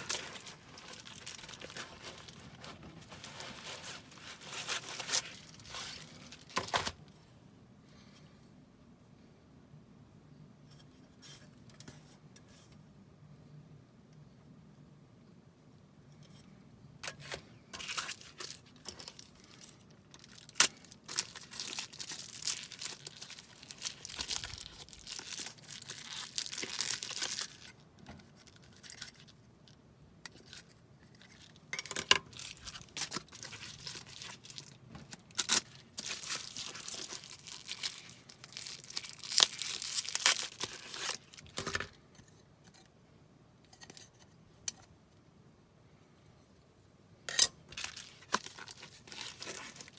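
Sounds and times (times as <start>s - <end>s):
wrapping crinkling and tearing: 0.0s - 7.1s, 17.8s - 29.8s, 30.4s - 41.9s, 47.7s - 49.9s.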